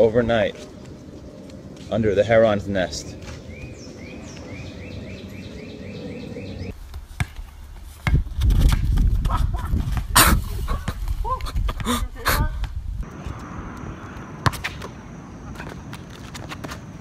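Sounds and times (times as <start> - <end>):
steady outdoor hum: 0.0 - 17.0
bird chirping: 2.5 - 6.8
basketball bouncing on asphalt: 6.7 - 10.2, 12.6 - 17.0
sharp thumps on asphalt: 6.9 - 10.2.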